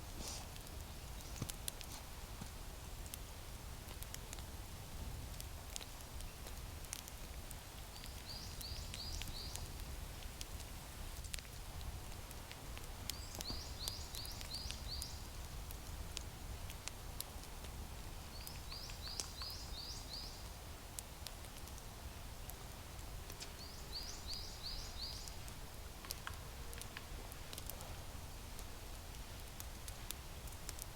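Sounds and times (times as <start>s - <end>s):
small bird singing: 7.9s - 9.7s, 13.1s - 15.3s, 18.3s - 20.4s, 23.4s - 25.4s
faint clicks: 18.3s - 19.6s, 25.2s - 27.8s.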